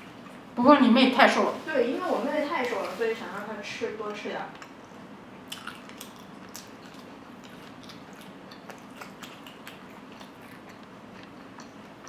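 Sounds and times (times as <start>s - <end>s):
chewing and biting food: 5.4s - 12.0s.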